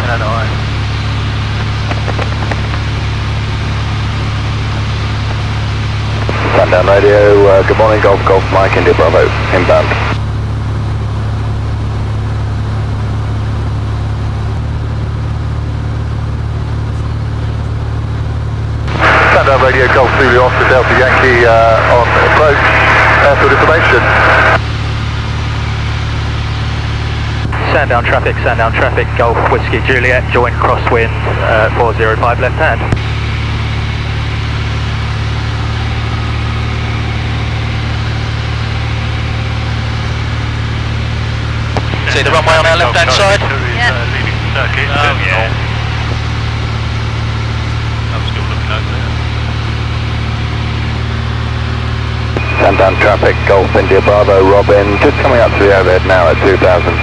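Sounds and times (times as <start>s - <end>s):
aircraft engine and propeller droning: 0.0s - 57.0s.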